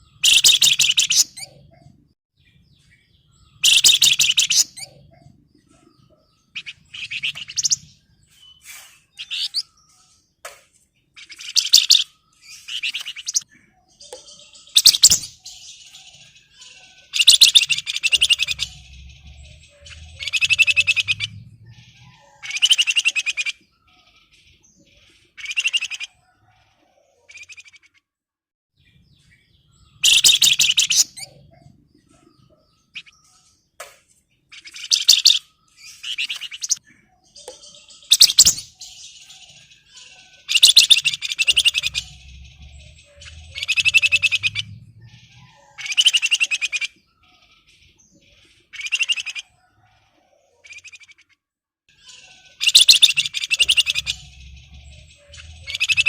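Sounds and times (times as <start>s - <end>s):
bird chattering trills: 0.0s - 1.8s, 3.6s - 5.4s, 6.4s - 8.0s, 11.2s - 23.6s, 29.9s - 31.6s, 34.5s - 36.8s, 37.4s - 47.6s, 48.3s - 49.6s, 51.9s - 56.0s.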